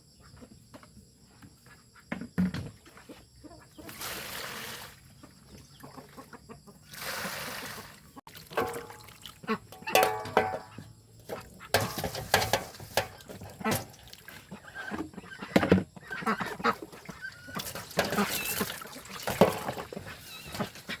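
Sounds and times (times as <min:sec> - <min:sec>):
chickens clucking: 0:03.0 - 0:04.0, 0:05.1 - 0:07.4, 0:08.6 - 0:21.0.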